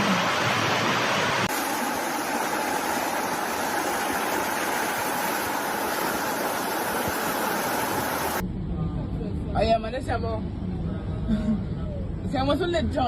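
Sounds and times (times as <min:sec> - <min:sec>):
rushing water: 0:00.0 - 0:08.4.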